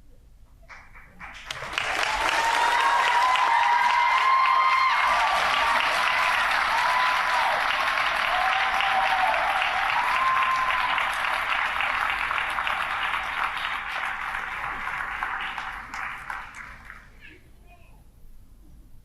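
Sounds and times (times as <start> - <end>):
audience applauding: 0.7 - 17.4
short cheers: 2.1 - 11.3.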